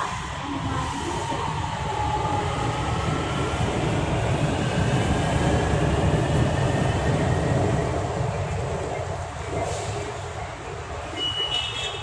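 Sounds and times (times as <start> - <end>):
metro train rumble: 0.0 - 12.0.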